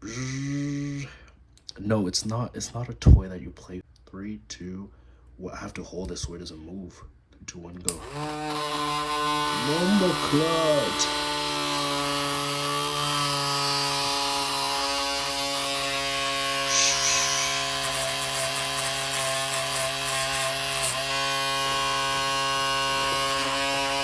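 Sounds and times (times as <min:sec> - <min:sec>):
small motor whirring: 0:08.0 - 0:24.0.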